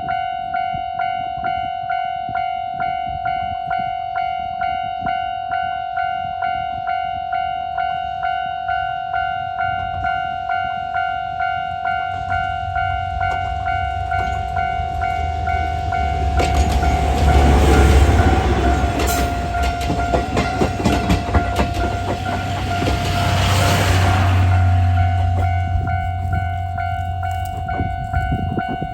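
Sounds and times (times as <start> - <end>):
level-crossing bell ringing: 0.0 - 28.9
diesel locomotive engine rumble: 6.8 - 28.9
train wheels clicking over rail joints: 11.9 - 28.9.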